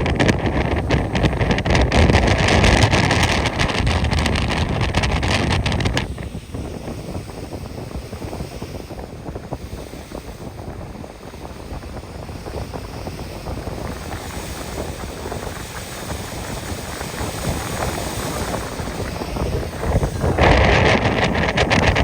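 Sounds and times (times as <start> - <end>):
wind buffeting microphone: 0.0 - 22.0
water rushing: 8.2 - 22.0.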